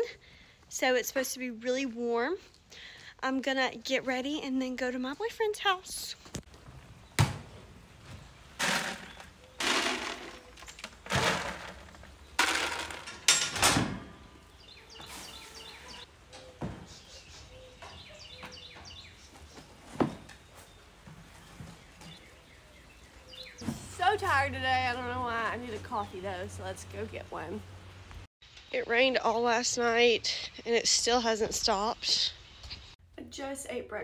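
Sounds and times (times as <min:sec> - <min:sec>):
rustling and scraping: 0:06.1 - 0:22.7.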